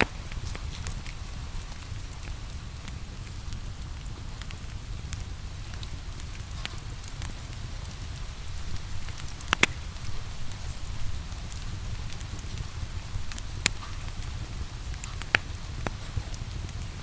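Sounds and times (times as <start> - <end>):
loud pop from fire: 0.0 - 1.2, 8.4 - 14.4, 15.0 - 16.8
faint rain hiss: 0.0 - 17.0
wood fire crackling: 0.0 - 17.0.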